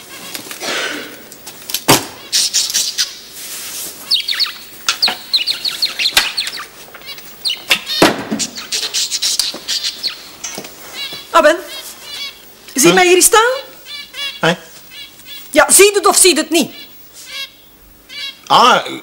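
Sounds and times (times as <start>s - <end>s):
small bird chirping: 2.2s - 3.3s, 4.0s - 18.6s
sharp knocks: 7.7s - 8.6s.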